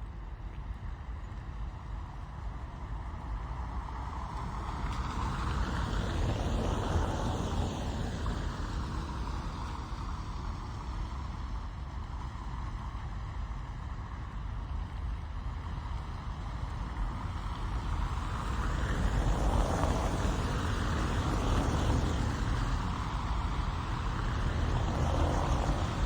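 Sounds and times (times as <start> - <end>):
rain on a car: 15.8 - 26.0.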